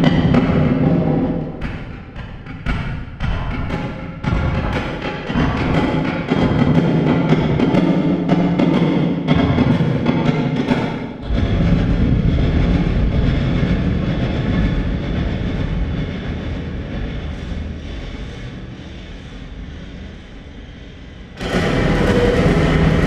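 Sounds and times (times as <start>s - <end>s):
low engine-like drone: 11.2s - 23.0s.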